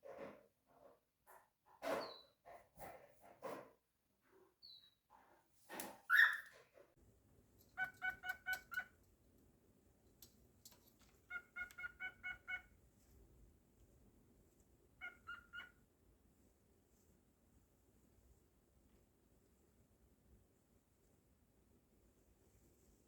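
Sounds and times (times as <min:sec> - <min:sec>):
cockatiel chirping: 0:07.8 - 0:08.9, 0:11.3 - 0:12.7, 0:15.0 - 0:15.8.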